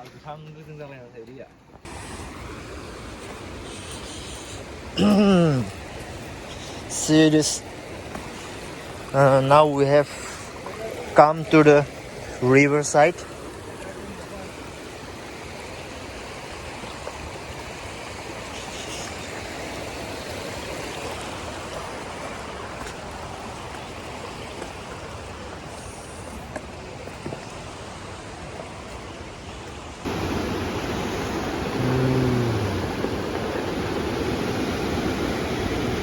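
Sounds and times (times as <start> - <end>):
flowing river water: 1.8 - 36.0
short low tone: 31.8 - 32.9.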